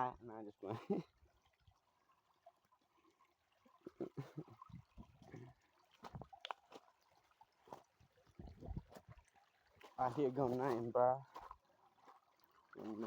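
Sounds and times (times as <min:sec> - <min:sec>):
water trickling and gurgling: 0:00.0 - 0:13.0.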